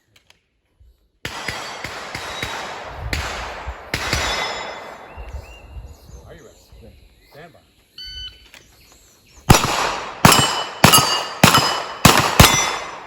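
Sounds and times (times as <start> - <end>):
steel targets ringing: 4.2 - 5.0, 9.6 - 13.0.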